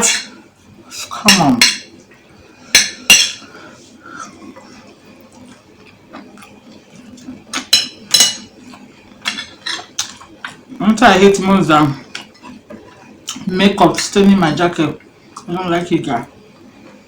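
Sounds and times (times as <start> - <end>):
cutlery clinking against a bowl: 1.1 - 1.9, 2.8 - 3.4, 7.2 - 10.6.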